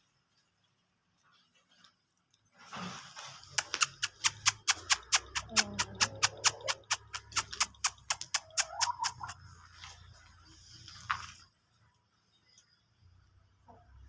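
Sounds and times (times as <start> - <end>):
rapid clicking: 3.5 - 9.4.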